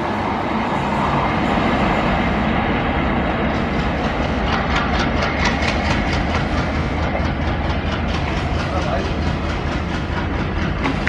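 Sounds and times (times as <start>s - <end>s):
train wheels rumbling on track: 0.0s - 11.0s
wheel clicks over rail joints: 3.6s - 11.0s.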